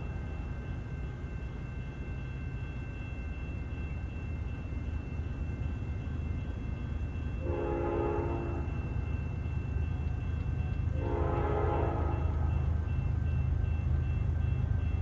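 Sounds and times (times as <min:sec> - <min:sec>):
diesel locomotives rumbling: 0:00.0 - 0:15.0
train air horn blast: 0:07.4 - 0:08.7, 0:10.9 - 0:12.6.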